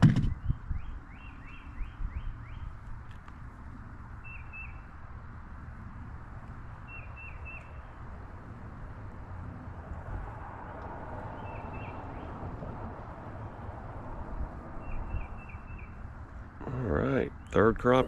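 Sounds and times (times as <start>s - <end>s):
bird chirping: 0.2s - 2.8s, 4.1s - 5.0s, 6.6s - 8.0s, 10.6s - 12.4s, 14.8s - 16.1s.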